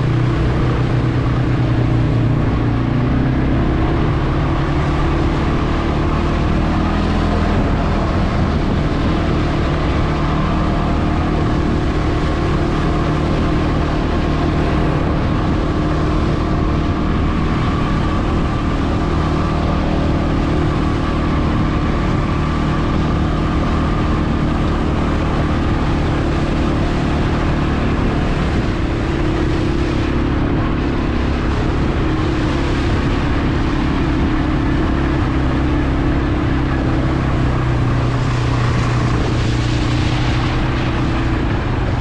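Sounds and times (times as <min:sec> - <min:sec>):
atv engine running steadily: 0:00.0 - 0:42.0
constant rushing noise: 0:00.0 - 0:42.0.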